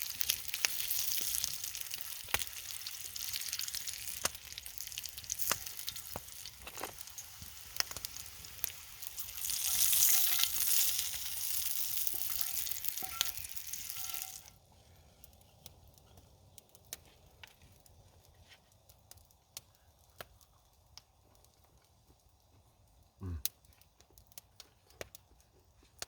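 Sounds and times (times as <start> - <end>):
food sizzling in a pan: 0.0 - 14.5.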